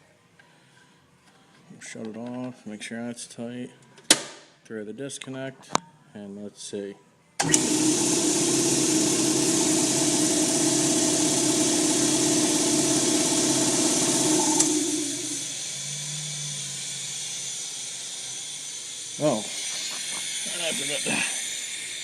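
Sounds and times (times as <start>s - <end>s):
air compressor running: 7.4s - 22.0s
air hissing from valve: 14.3s - 22.0s.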